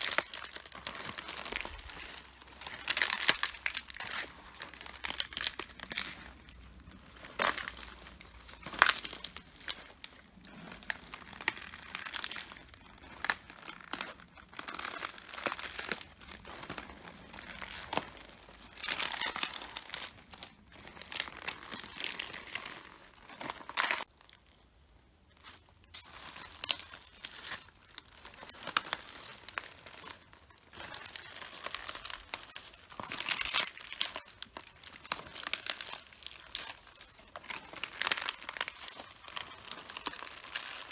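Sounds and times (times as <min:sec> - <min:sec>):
cabbage leaves crunching underfoot: 0:00.0 - 0:24.2.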